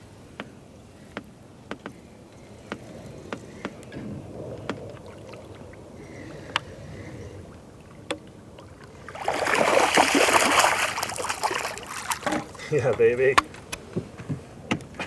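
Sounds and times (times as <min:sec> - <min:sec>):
fish splashing in water: 0:04.7 - 0:12.7.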